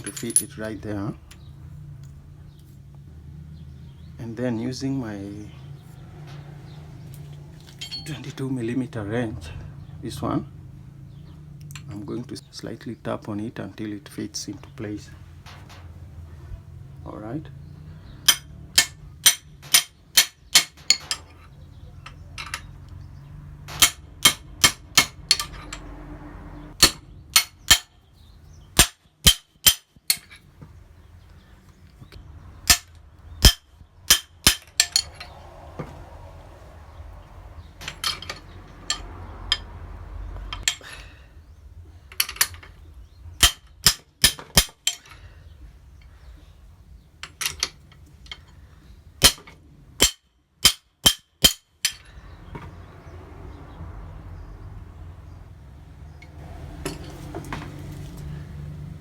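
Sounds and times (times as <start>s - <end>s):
metal-on-metal taps: 18.2s - 23.0s, 23.6s - 25.9s, 28.8s - 30.7s, 32.1s - 35.9s, 37.8s - 39.7s, 43.4s - 45.2s, 49.2s - 52.7s.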